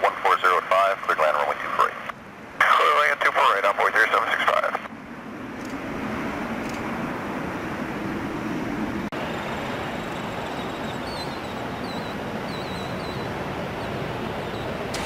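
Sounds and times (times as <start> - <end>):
jet engine roar: 0.0 - 15.0
small bird chirping: 9.9 - 14.8.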